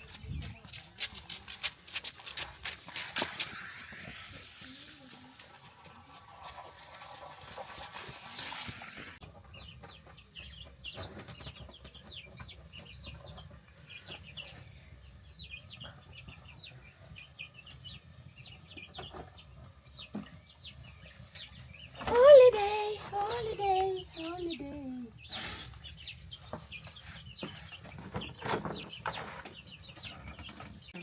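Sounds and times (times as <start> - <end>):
chicks peeping: 9.2 - 31.0.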